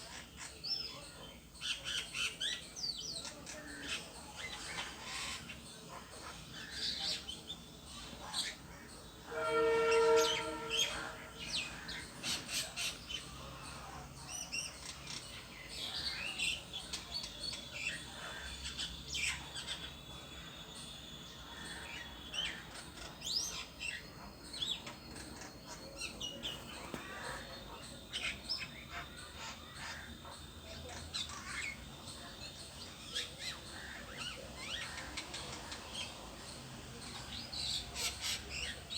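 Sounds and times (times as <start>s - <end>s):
bird low call: 8.5s - 13.0s.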